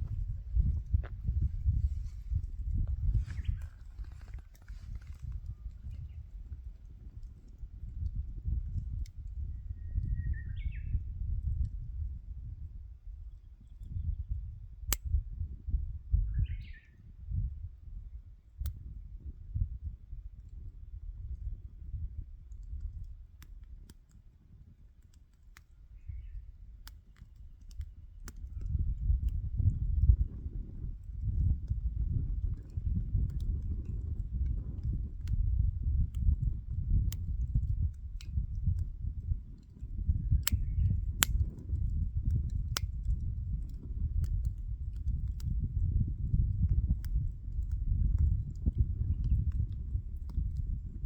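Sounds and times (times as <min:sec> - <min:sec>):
low rumble: 0:00.0 - 0:10.2
campfire crackling: 0:22.4 - 0:29.4, 0:30.0 - 0:50.7.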